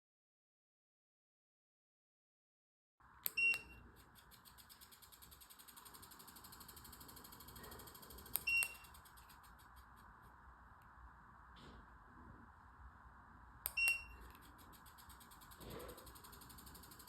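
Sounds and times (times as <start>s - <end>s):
fan whirring: 3.1s - 17.0s
fan beeping: 3.2s - 10.2s, 13.6s - 17.0s
sharp click: 8.2s - 10.1s.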